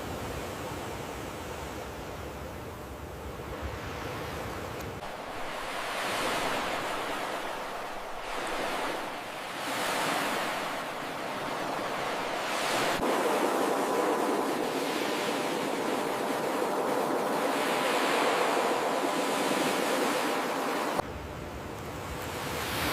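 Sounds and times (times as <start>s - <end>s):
ocean surf breaking: 3.7s - 21.0s.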